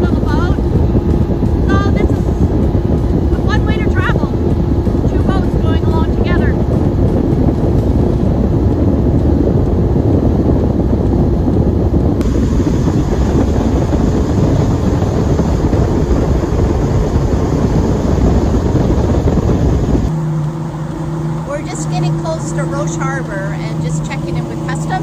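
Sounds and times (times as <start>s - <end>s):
boat engine: 0.0s - 25.0s
water noise: 0.0s - 25.0s
wind buffeting microphone: 0.0s - 25.0s.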